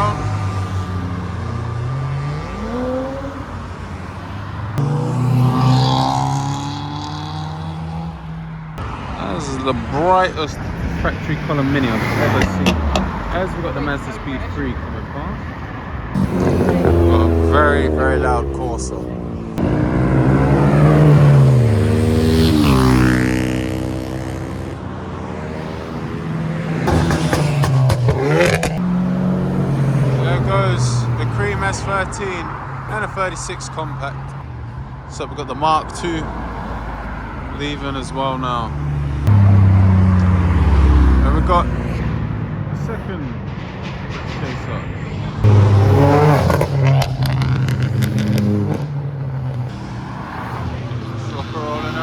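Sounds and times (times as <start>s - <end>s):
car engine revving: 0.0s - 34.5s, 35.1s - 52.0s
loud car accelerating: 0.0s - 34.6s, 35.8s - 42.8s, 44.1s - 52.0s
cars driving past: 0.0s - 52.0s
exhaust crackles: 16.1s - 34.4s, 36.0s - 43.2s, 43.9s - 52.0s.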